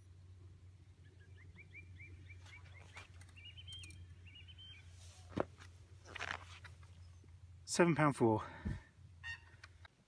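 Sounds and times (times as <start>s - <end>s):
songbird chirping and warbling: 0.2s - 5.4s.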